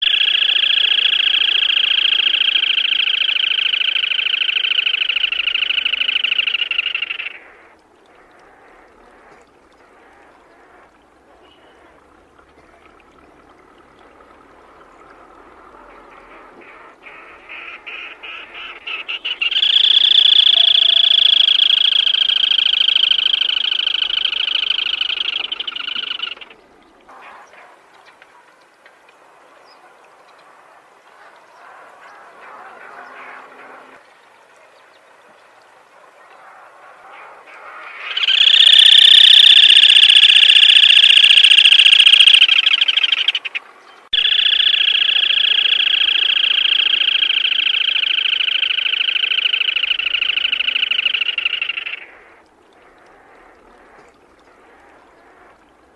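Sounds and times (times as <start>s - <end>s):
bird rattling trills: 19.0s - 26.5s, 38.1s - 43.6s, 44.2s - 52.0s.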